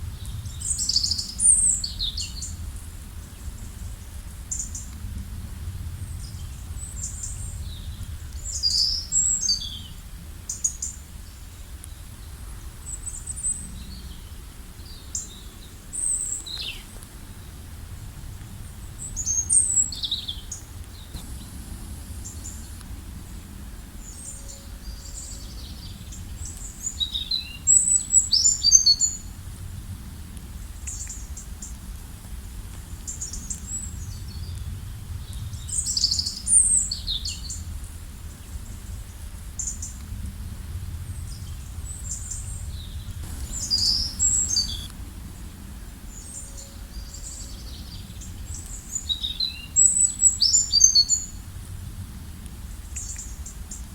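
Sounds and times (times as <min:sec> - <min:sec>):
low background rumble: 0:17.2 - 0:26.5, 0:40.3 - 0:46.3
songbirds chirping and trilling: 0:42.0 - 0:44.9.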